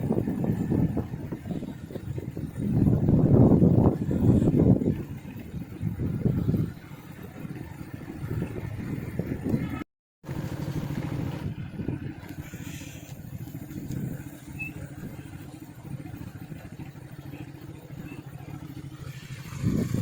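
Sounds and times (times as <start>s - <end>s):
vehicle engine and road rumble: 0.0s - 20.0s.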